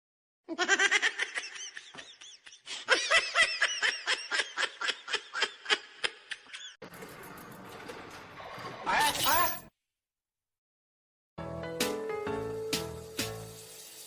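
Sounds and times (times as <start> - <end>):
high-pitched laughter: 0.5 - 6.8.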